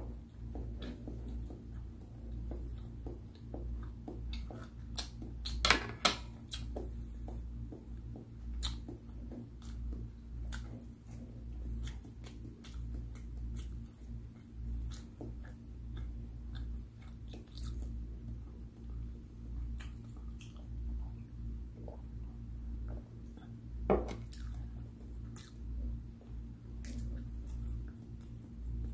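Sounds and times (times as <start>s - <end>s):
low steady hum: 0.0s - 28.9s
wet clicks and lip smacks: 8.6s - 18.0s, 19.7s - 20.8s.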